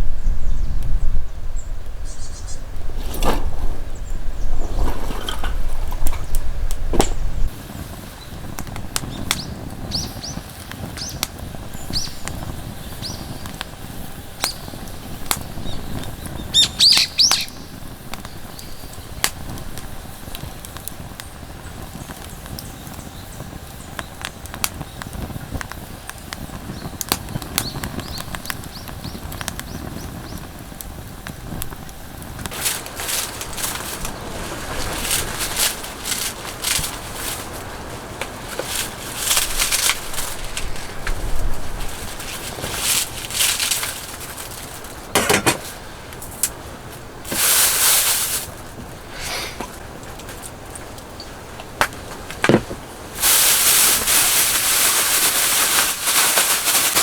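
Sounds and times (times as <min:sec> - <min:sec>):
birds chirping: 0:00.2 - 0:19.2, 0:21.1 - 0:30.6, 0:32.5 - 0:47.2
steady rain: 0:04.7 - 0:57.0.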